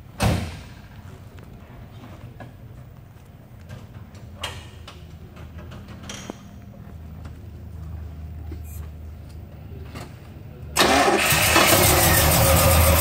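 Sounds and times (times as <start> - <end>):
car engine starting and rumbling: 9.8 - 13.0.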